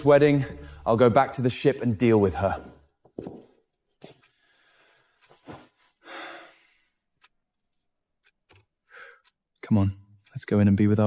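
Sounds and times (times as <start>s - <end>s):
faint clicks: 6.8s - 10.4s.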